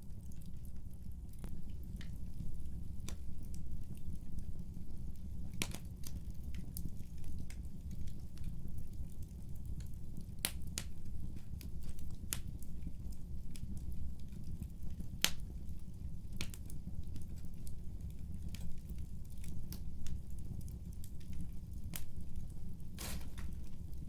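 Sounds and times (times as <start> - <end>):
fire rumbling: 0.0 - 24.0
fire popping: 10.2 - 24.0.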